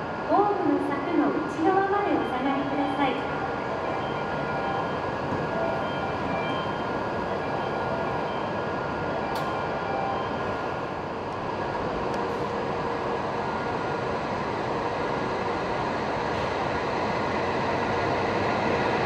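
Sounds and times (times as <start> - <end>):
train humming and hissing: 0.0 - 19.0
train pulling out: 2.1 - 19.0
sharp click: 9.3 - 9.6.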